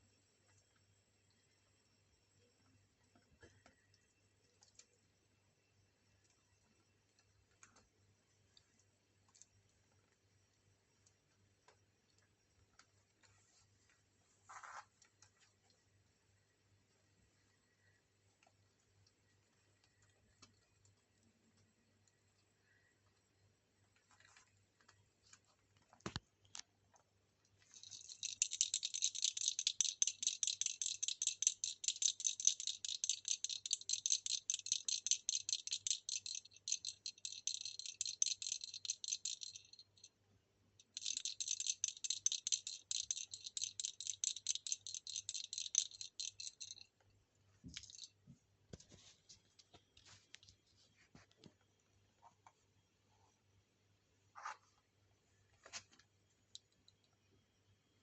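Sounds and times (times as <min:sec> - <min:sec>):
fast rattling clicks: 0:27.7 - 0:40.1, 0:40.8 - 0:46.9, 0:47.8 - 0:48.1.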